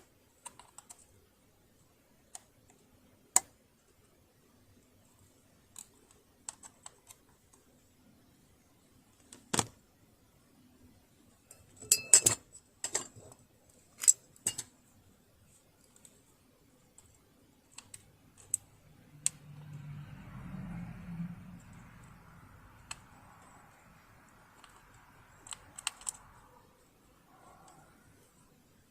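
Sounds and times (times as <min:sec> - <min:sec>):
metal tools clicking and clinking: 0:11.5 - 0:13.4.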